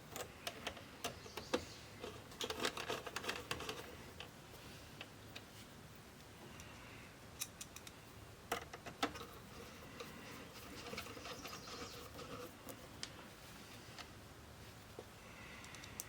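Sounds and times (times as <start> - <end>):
scratchy rustling: 9.2 - 15.0.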